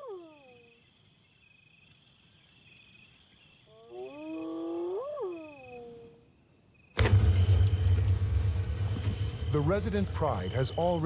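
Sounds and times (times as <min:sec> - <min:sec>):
crickets chirping: 0:00.0 - 0:11.0
hyena pup whooping call: 0:03.7 - 0:06.2.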